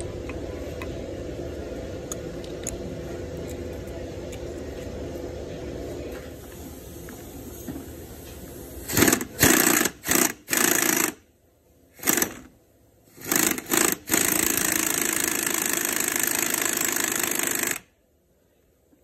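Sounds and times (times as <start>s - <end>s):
impact wrench running: 8.8s - 11.2s, 12.0s - 12.5s, 13.1s - 17.9s.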